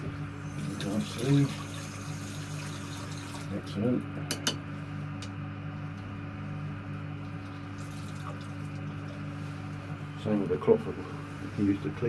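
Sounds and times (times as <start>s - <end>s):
constant low hum: 0.0s - 12.0s
water running: 0.5s - 3.7s, 7.6s - 9.3s.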